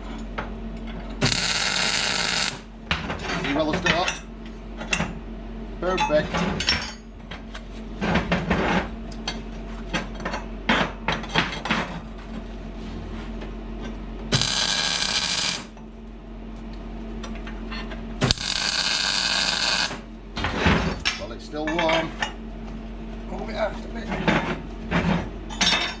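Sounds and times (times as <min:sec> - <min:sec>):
steady low hum: 0:00.0 - 0:05.8, 0:12.4 - 0:21.2
welder arc hiss: 0:01.2 - 0:02.6, 0:14.3 - 0:15.7, 0:18.2 - 0:20.0.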